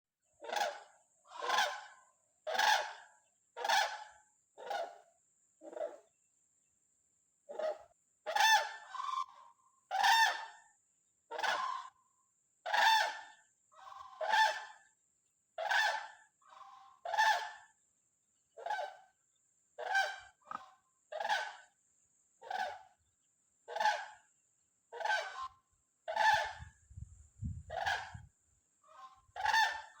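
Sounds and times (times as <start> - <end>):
large bird calling: 19.8 - 20.6.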